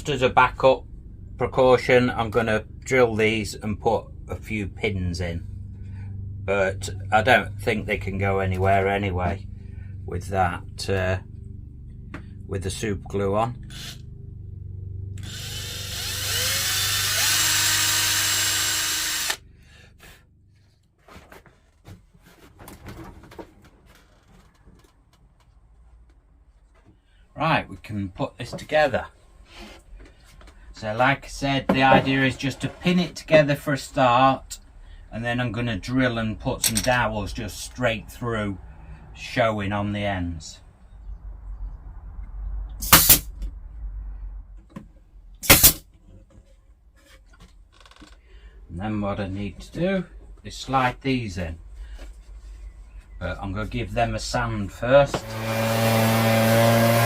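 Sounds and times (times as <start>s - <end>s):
power drill boring into wood: 15.2s - 19.4s, 45.4s - 45.8s, 55.1s - 57.0s
pin nailer firing: 42.8s - 43.3s, 45.4s - 45.8s, 55.2s - 57.0s.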